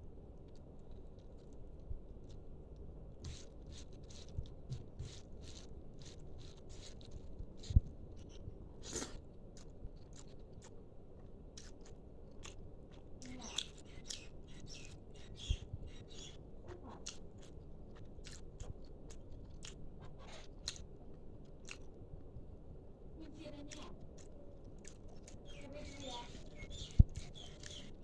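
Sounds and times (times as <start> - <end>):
person chewing and crunching: 3.2 - 14.2, 17.0 - 22.0, 24.1 - 25.6.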